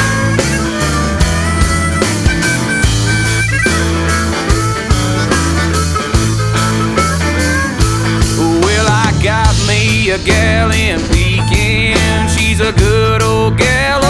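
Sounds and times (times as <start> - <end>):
drums keeping steady beat: 0.0 - 14.0
melodic instrumental lines: 0.0 - 14.0
sustained bass notes: 0.0 - 14.0.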